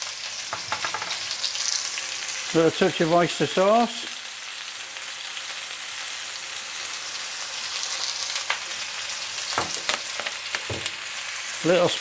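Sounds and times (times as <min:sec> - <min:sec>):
food sizzling in hot oil: 0:00.0 - 0:12.0
light knocks on pan: 0:00.5 - 0:01.2, 0:09.6 - 0:11.0.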